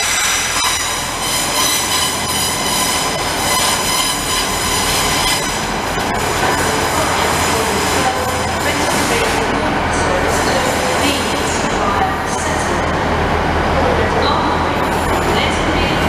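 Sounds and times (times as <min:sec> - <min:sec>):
high-pitched ringing squeal: 0:00.0 - 0:05.7
train rolling noise: 0:00.0 - 0:16.0.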